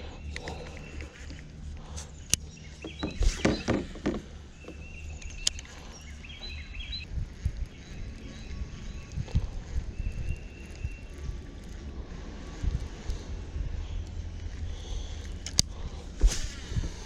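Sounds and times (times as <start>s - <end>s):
steady low rumble: 0.0s - 17.0s
bird chirps: 2.0s - 11.4s
paddle knocking against hull: 2.8s - 4.3s
sharp clicks: 4.6s - 6.0s, 15.2s - 15.8s.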